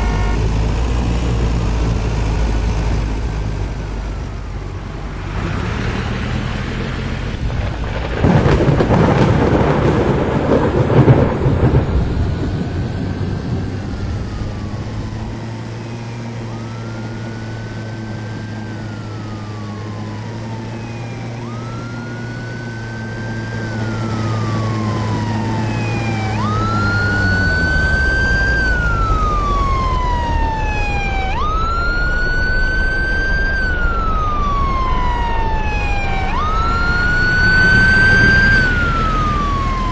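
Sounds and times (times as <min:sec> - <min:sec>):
siren wailing: 0:00.0 - 0:00.8, 0:07.6 - 0:39.9
low hum: 0:00.0 - 0:39.9
thunder crash: 0:07.4 - 0:14.7.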